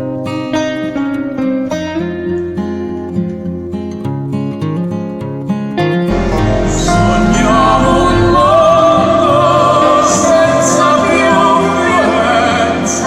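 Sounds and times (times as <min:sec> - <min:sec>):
orchestral accompaniment: 0:06.1 - 0:11.3
operatic singing: 0:06.1 - 0:13.0.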